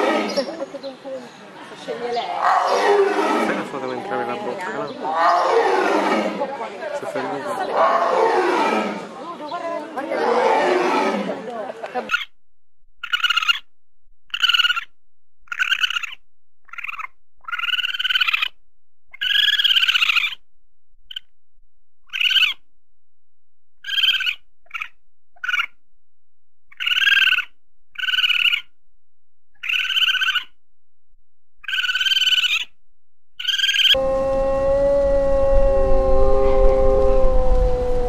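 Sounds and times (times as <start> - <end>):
wolf howling: 2.2 - 6.5, 7.2 - 9.2, 10.0 - 11.5, 33.6 - 38.0
raccoon squalling: 13.0 - 13.6, 14.3 - 14.9, 15.5 - 18.5, 19.1 - 20.4, 22.1 - 22.6, 23.8 - 25.7, 26.7 - 28.7, 29.6 - 30.5, 31.6 - 32.7.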